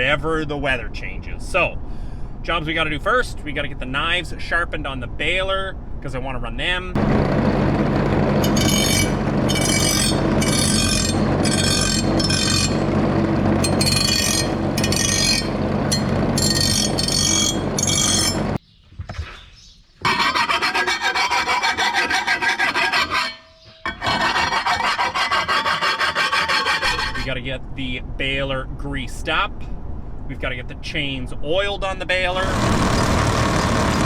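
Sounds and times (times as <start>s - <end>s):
low hum: 6.9s - 18.6s
file rasping on metal: 8.4s - 12.8s, 13.6s - 18.4s, 20.0s - 27.3s.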